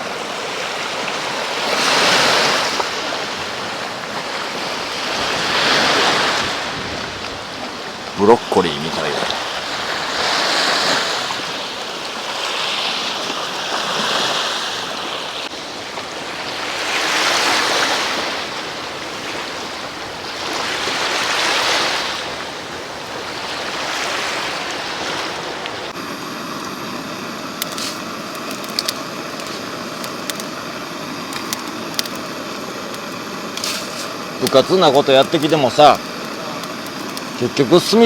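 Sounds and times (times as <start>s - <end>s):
sea waves washing on shore: 0.0s - 38.0s
steady hiss with crackles: 6.4s - 12.4s, 25.6s - 38.0s.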